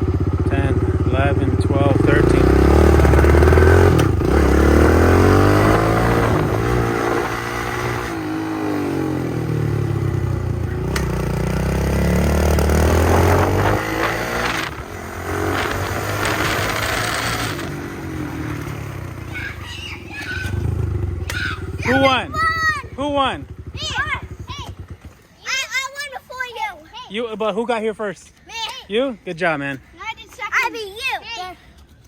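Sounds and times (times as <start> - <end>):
dirt bike engine revving: 0.0 - 25.4.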